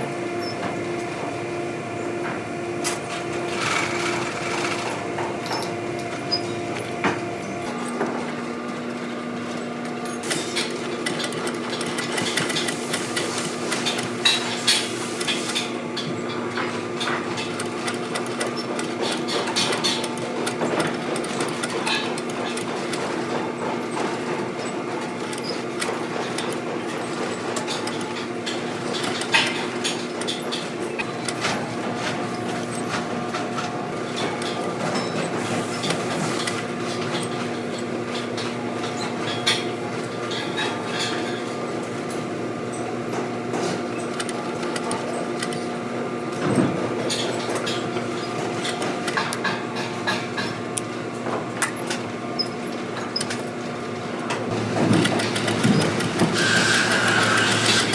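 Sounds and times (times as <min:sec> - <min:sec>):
sharp clicks and knocks: 0:10.3 - 0:15.6
machine motor humming: 0:54.2 - 0:57.9.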